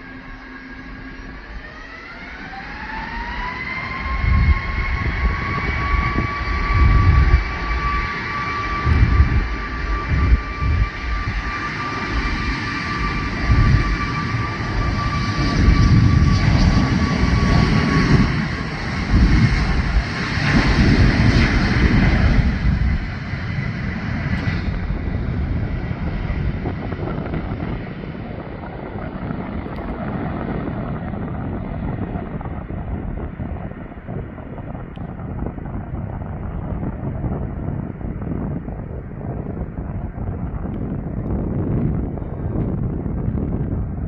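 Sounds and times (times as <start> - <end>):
jet engine fan whine: 0.0 - 44.0
loud low rumble: 13.1 - 44.0.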